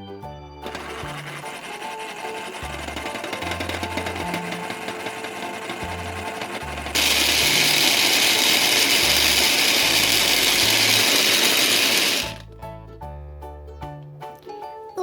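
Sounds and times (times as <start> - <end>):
children's music with bass line: 0.0 - 15.0
blender running: 0.6 - 12.4.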